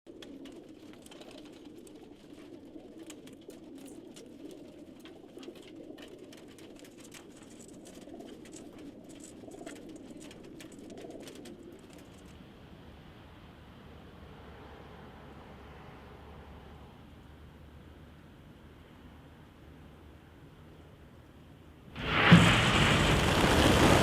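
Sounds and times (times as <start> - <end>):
pigeons cooing: 0.1 - 12.3.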